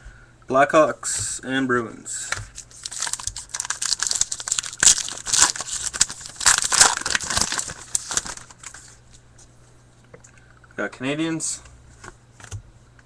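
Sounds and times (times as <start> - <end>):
wrapper being torn and crinkled: 2.5 - 9.0.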